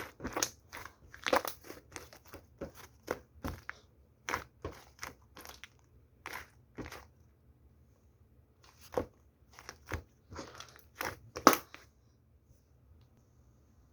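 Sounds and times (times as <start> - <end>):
crunching and crinkling: 0.0 - 7.1, 8.6 - 11.8.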